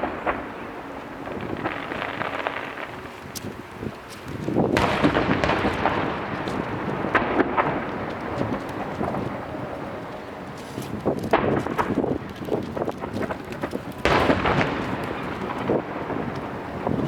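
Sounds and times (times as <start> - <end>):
fireworks booming and cracking: 0.0 - 17.0.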